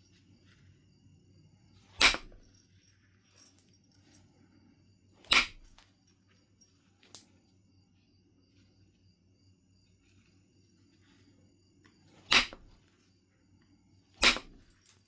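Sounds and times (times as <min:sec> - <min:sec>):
sharp strikes on flint: 0:02.0 - 0:02.5, 0:05.2 - 0:05.8, 0:12.2 - 0:12.8, 0:14.2 - 0:14.8.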